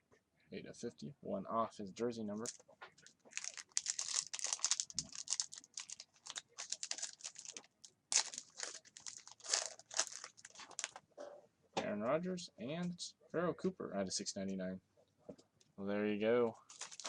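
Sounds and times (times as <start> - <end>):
card wrapper rustling and crinkling: 2.4 - 11.0, 16.6 - 17.0.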